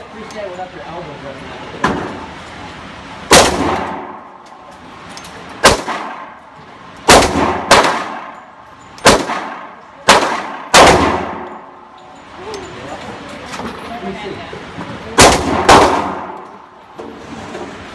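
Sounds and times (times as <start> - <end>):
gunshots with echoing tail: 3.3 - 4.4, 5.6 - 6.4, 7.1 - 11.7, 15.2 - 16.6.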